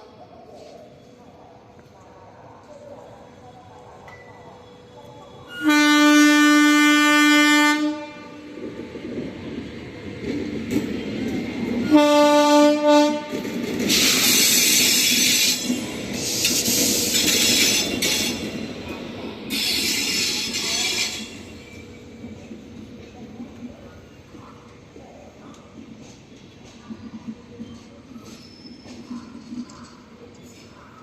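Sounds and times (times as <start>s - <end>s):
train wheels rushing on rails: 3.6s - 31.0s
locomotive horn blasts: 5.5s - 8.4s, 11.9s - 13.4s.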